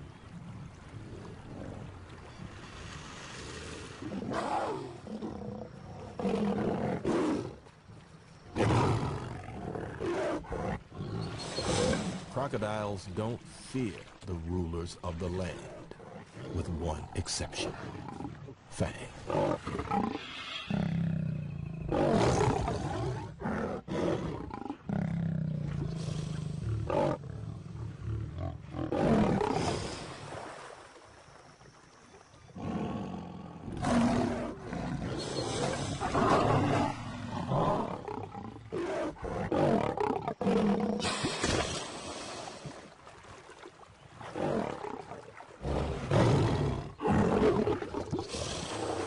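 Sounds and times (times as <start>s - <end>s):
lion roaring: 32.6s - 41.1s.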